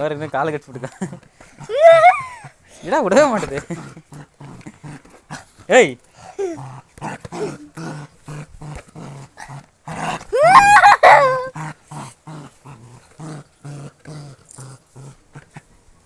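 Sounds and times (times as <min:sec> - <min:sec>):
puppy growling: 0:00.8 - 0:15.7
puppy rising cry: 0:01.6 - 0:02.5, 0:07.3 - 0:08.0, 0:10.3 - 0:11.6.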